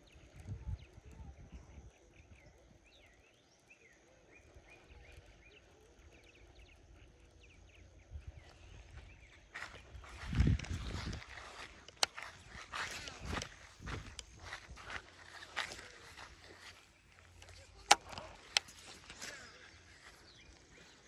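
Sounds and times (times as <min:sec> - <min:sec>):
faint birds chirping: 0:00.0 - 0:21.0.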